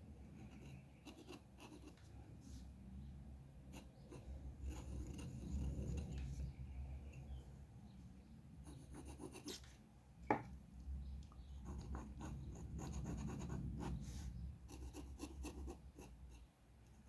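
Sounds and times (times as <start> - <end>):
low steady hum: 0.0 - 17.0
drawing tool scratching on paper: 0.4 - 2.0, 3.7 - 6.4, 8.7 - 9.6, 11.6 - 16.4.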